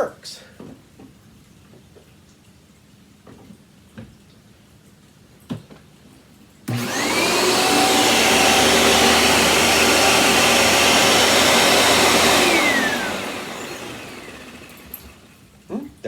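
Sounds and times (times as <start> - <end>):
vacuum cleaner motor whine: 6.7 - 15.4.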